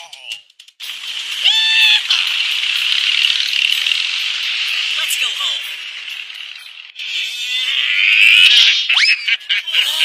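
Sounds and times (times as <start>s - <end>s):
high hissing rattle: 0.8s - 5.0s.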